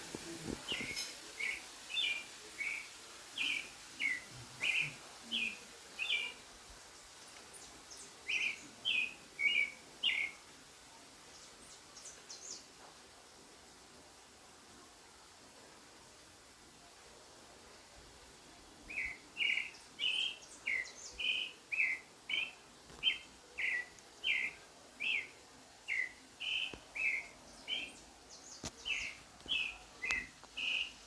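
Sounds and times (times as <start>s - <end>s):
bird chirping: 0.7s - 6.4s, 18.9s - 31.0s.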